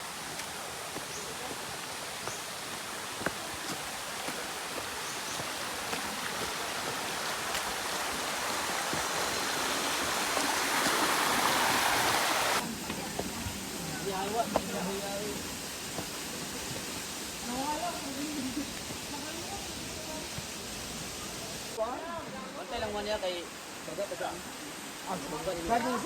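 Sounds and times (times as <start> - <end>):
stream rushing: 0.0 - 26.0.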